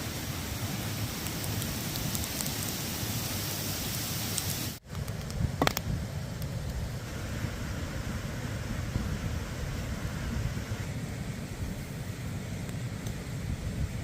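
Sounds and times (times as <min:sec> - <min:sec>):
rain drops ticking: 0:00.0 - 0:05.4
steady rain falling: 0:00.0 - 0:05.4.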